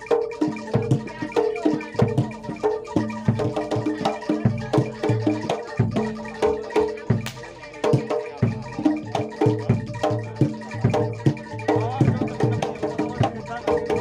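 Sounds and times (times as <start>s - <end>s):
metal percussion struck: 7.2s - 8.1s.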